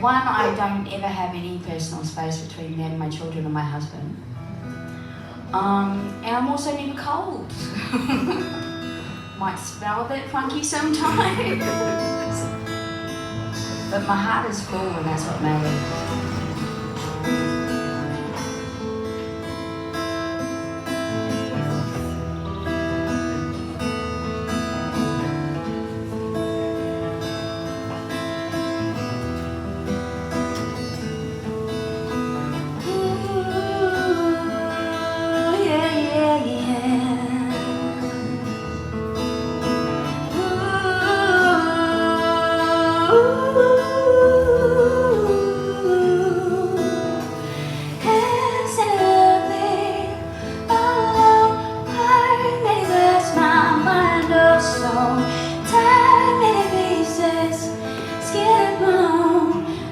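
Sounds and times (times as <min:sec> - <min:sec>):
acoustic guitar playing: 0:00.0 - 0:59.9
woman singing: 0:09.4 - 0:12.8, 0:32.6 - 0:38.7, 0:40.1 - 0:59.9.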